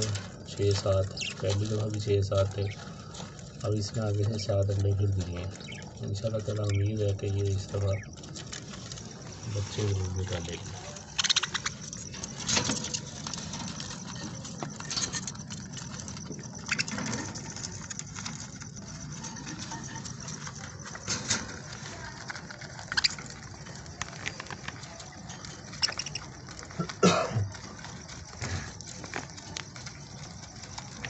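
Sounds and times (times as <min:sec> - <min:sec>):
budgerigars chattering: 0:01.0 - 0:02.9, 0:05.3 - 0:07.0, 0:09.5 - 0:12.2, 0:25.8 - 0:26.3.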